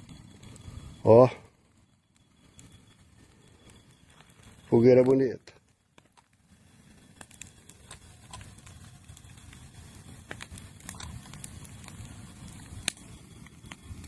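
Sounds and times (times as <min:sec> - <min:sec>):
bonfire burning rush: 0:00.0 - 0:14.0
wood crackling and popping: 0:00.0 - 0:14.0.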